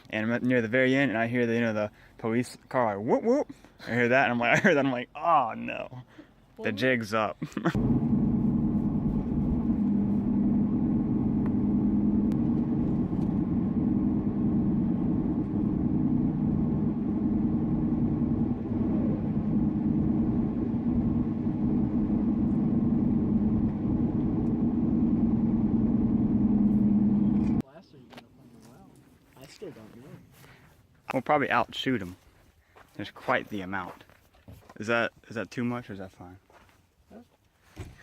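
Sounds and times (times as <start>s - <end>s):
car engine droning: 7.8s - 27.6s
road noise: 7.8s - 27.6s.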